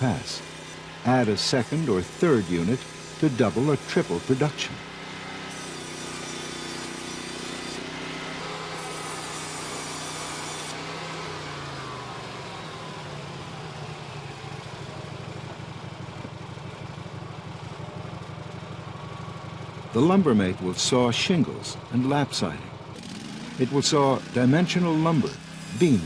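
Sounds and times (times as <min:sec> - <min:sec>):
band blade sawing wood: 0:00.0 - 0:13.6, 0:23.0 - 0:26.0
sawmill engine running: 0:00.0 - 0:26.0.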